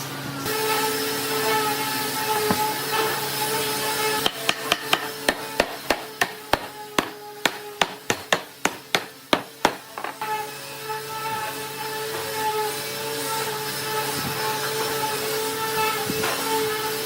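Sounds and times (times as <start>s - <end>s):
hammer striking wood: 4.2s - 10.2s.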